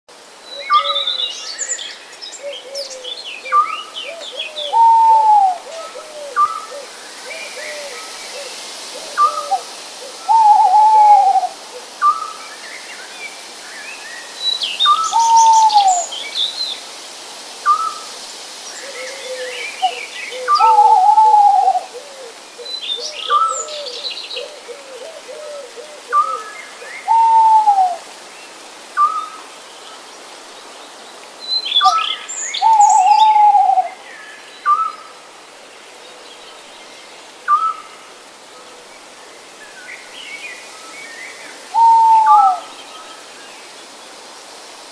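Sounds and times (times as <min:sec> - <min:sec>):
steady background hiss: 0:00.1 - 0:44.9
bird drawn-out falling call: 0:02.6 - 0:06.8, 0:32.6 - 0:33.9, 0:41.7 - 0:42.7.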